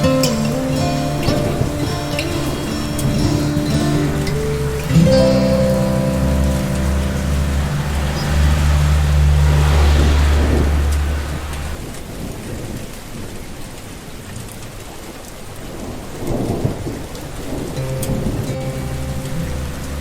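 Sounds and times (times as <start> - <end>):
thunder rumbling: 0.0 - 11.8, 15.8 - 20.0
rain falling: 0.0 - 20.0.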